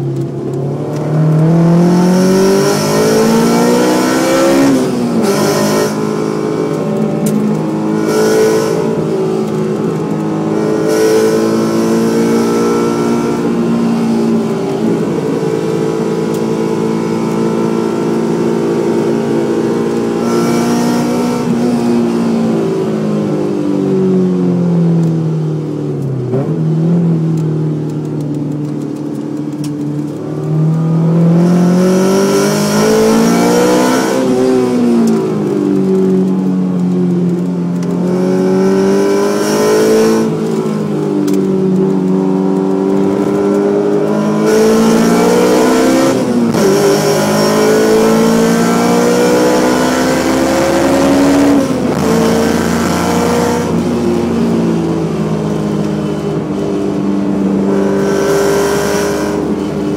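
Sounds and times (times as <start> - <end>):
car engine accelerating through gears: 0.0 - 59.9.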